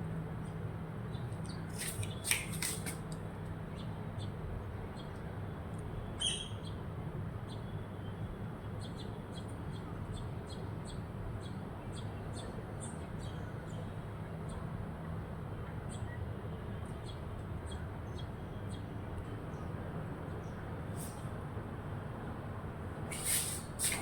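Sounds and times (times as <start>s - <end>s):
low background hum: 0.0s - 24.0s
sparrows chirping: 3.7s - 5.3s, 5.9s - 14.8s, 15.8s - 21.4s, 22.9s - 24.0s.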